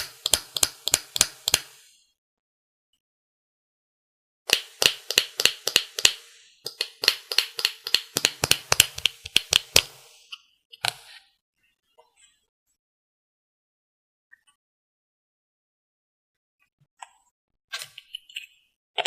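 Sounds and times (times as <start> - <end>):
sharp taps on hard object: 4.5 - 9.9.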